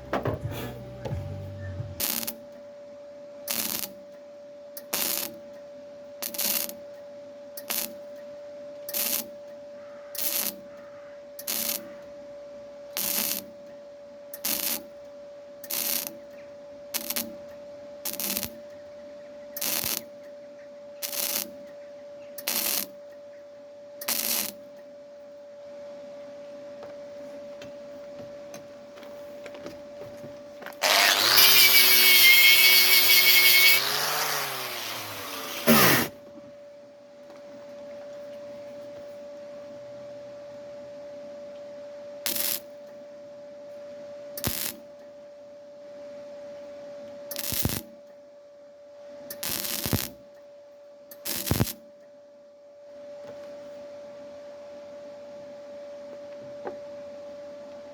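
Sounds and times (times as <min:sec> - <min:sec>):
steady hum: 0:00.0 - 0:03.4
welder bursts: 0:00.1 - 0:02.4, 0:30.7 - 0:36.2, 0:51.3 - 0:51.8
power tool running loudly: 0:30.8 - 0:36.2.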